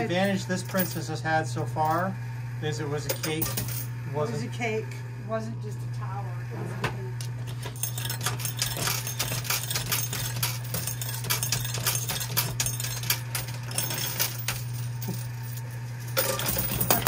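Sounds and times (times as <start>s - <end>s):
coins clinking in a coin pusher: 0.0s - 2.1s, 2.9s - 3.9s, 7.4s - 17.0s
low machine hum: 0.0s - 17.0s.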